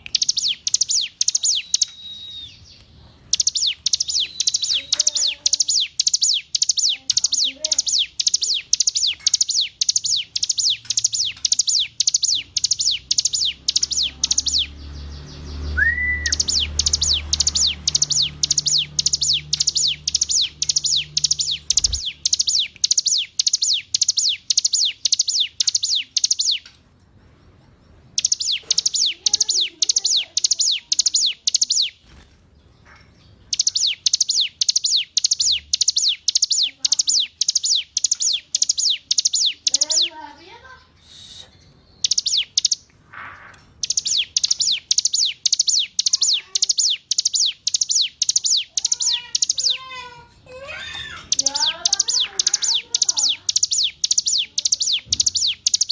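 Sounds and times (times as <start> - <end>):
bird singing high sharp notes: 0.0 - 26.7, 28.1 - 32.2, 33.5 - 42.9, 43.5 - 50.1, 50.7 - 55.9.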